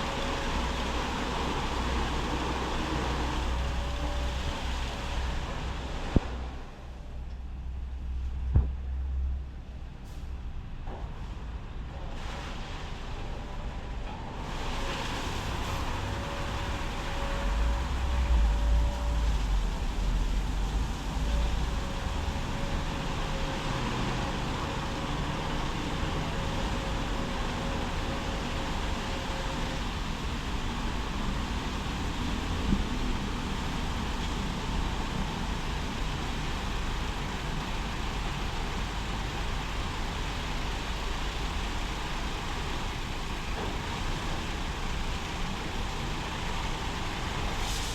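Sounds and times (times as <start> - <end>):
spraying water hiss: 14.4 - 47.9.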